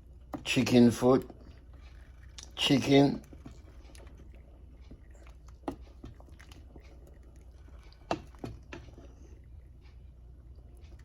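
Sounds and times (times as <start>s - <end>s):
low steady hum: 0.0s - 11.0s
spoon stirring thick soup: 0.1s - 11.0s.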